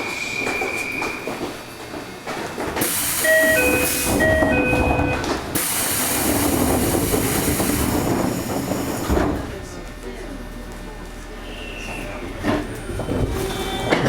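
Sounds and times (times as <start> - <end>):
pneumatic train door hissing: 2.8 - 9.5
two-tone chime: 3.2 - 5.2.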